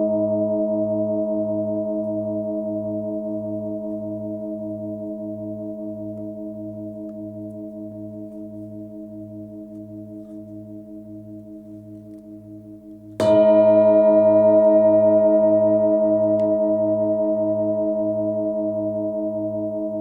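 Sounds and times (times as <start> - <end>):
singing bowl ringing: 13.2 - 20.0
singing bowl struck: 13.2 - 20.0.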